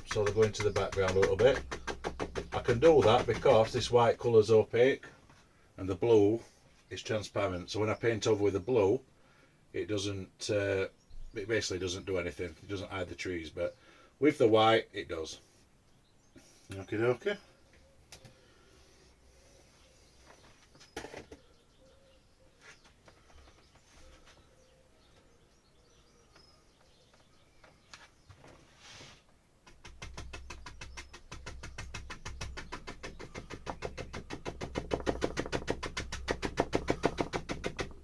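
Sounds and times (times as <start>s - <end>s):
rapid knocking of paintbrush: 0.0s - 3.9s, 29.6s - 38.0s.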